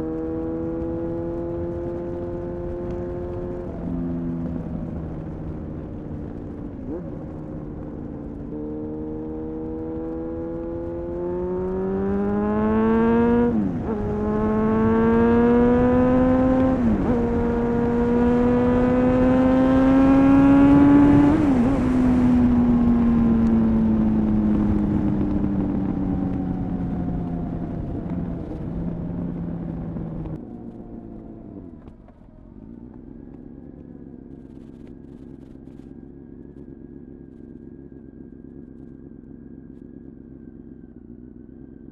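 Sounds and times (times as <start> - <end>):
motorcycle engine accelerating: 0.0 - 41.9
motorcycle engine idling: 28.8 - 41.9.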